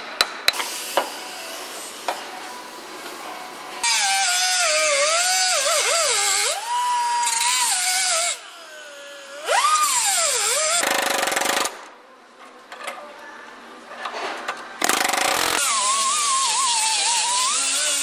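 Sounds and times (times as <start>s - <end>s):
power tool whining on sheet metal: 15.1s - 18.0s.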